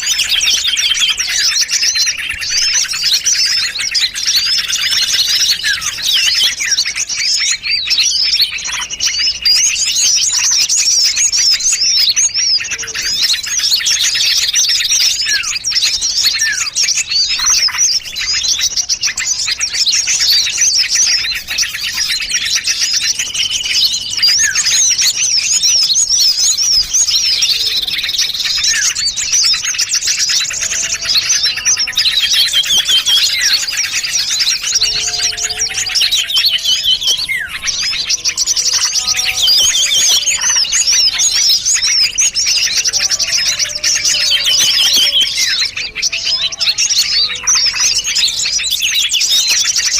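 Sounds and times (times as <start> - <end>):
songbirds chirping and trilling: 0.0 - 49.9.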